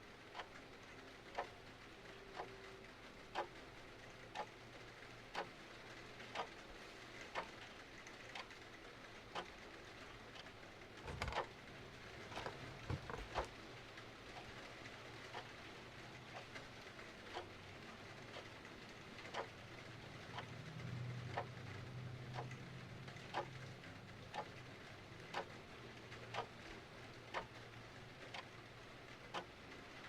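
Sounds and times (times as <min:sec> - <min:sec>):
steady rain: 0:00.0 - 0:30.0
clock ticking: 0:00.2 - 0:06.6, 0:09.3 - 0:13.5, 0:15.2 - 0:15.6, 0:16.3 - 0:19.7, 0:21.3 - 0:21.7, 0:22.3 - 0:24.6, 0:25.2 - 0:26.7, 0:27.3 - 0:27.6, 0:29.2 - 0:29.8.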